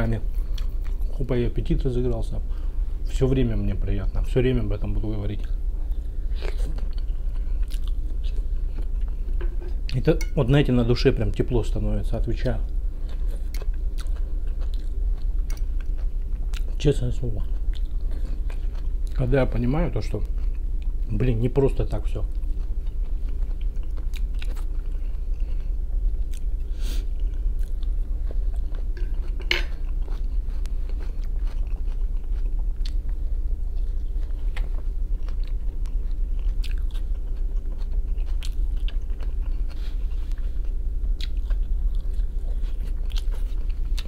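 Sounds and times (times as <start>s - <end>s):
steady low hum: 0.0s - 44.0s
person chewing food: 0.4s - 1.2s, 5.9s - 10.0s, 13.0s - 16.8s, 17.4s - 19.2s, 20.2s - 21.1s, 22.3s - 44.0s.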